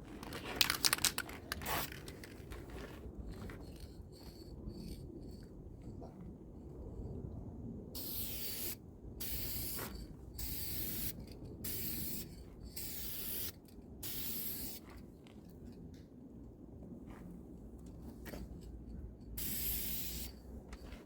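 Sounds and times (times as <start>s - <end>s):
spray paint hissing bursts: 8.0s - 14.8s, 19.4s - 20.4s.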